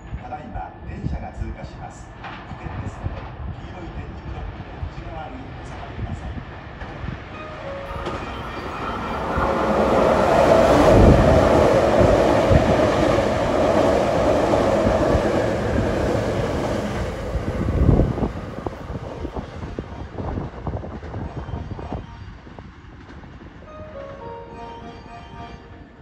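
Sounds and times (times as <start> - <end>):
electric train rushing past: 6.3 - 26.0.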